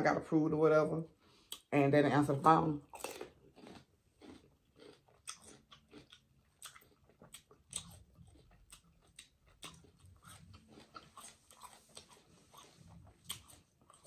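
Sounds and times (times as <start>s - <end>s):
chewing with wet mouth clicks: 2.9s - 14.0s.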